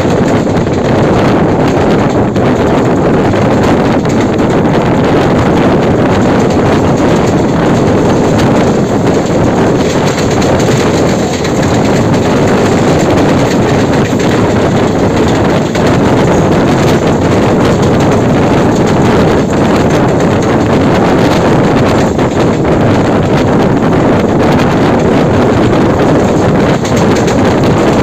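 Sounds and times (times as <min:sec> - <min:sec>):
train wheels rumbling on rail: 0:00.0 - 0:28.0
wind noise on microphone: 0:00.0 - 0:28.0.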